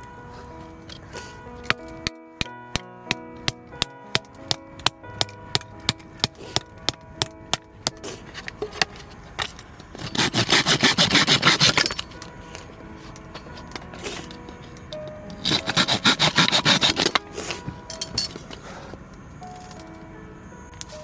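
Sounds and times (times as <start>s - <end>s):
light background music: 0.0s - 21.0s
rhythmic scraping strokes: 7.9s - 20.0s.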